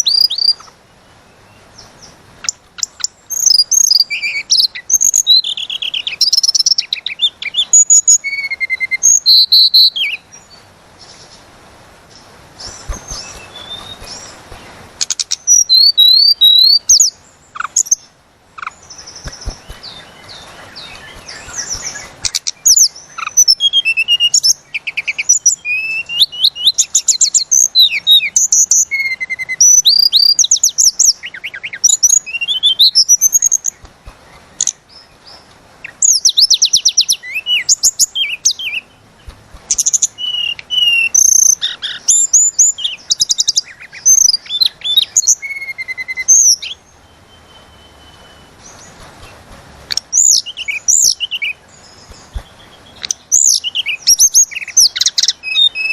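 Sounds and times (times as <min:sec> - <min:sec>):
songbird whistles and trills: 0:00.0 - 0:00.8, 0:01.8 - 0:11.4, 0:12.1 - 0:55.9.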